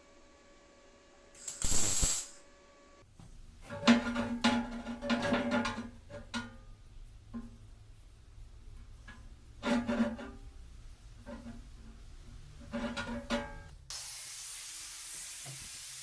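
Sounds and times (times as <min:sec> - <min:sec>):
loud burst of hiss: 0:01.4 - 0:02.4, 0:13.9 - 0:16.0.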